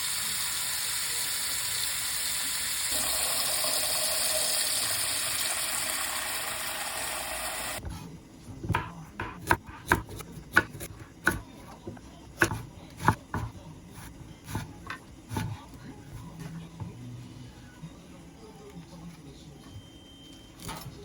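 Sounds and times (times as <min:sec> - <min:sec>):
knife chopping on wooden board: 0:08.7 - 0:11.5, 0:12.4 - 0:13.6.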